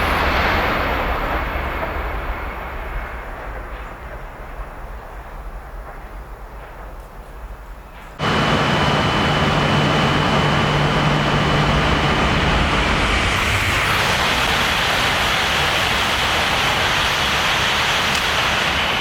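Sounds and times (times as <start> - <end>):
high-speed train passing: 0.0 - 19.0
high whine: 8.2 - 14.8.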